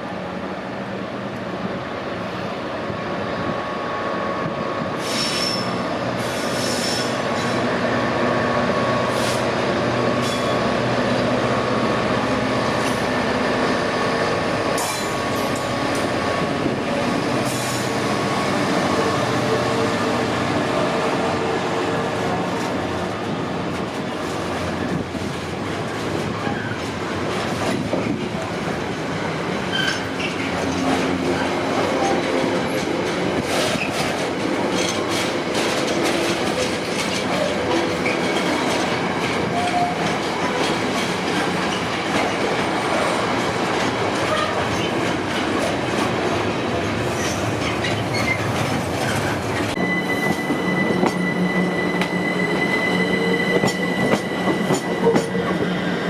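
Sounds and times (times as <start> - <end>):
train wheels rumbling on rails: 0.0 - 56.0
high-pitched squeal: 49.2 - 56.0.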